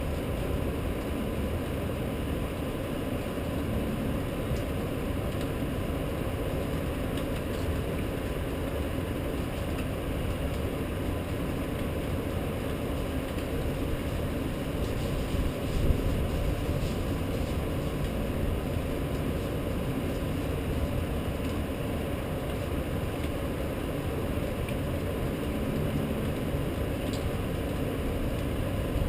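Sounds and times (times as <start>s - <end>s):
rainstorm: 0.0s - 29.0s.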